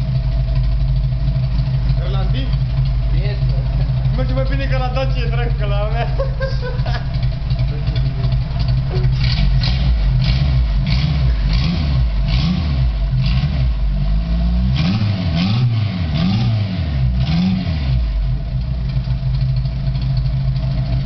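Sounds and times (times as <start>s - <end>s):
buggy engine revving: 0.0s - 21.0s.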